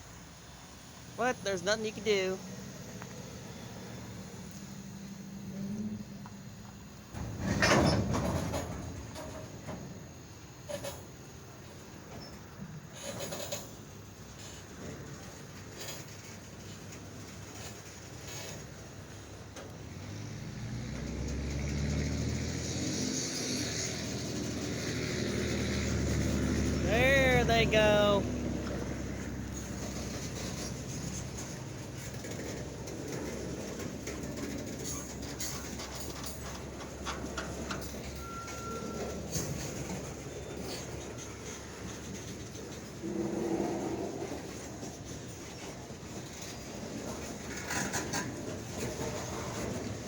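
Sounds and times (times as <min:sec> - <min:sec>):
freight train rumbling: 0:00.0 - 0:50.0
wheels clicking over rail joints: 0:02.2 - 0:26.8, 0:28.3 - 0:50.0
locomotive engines throttling up: 0:10.2 - 0:50.0.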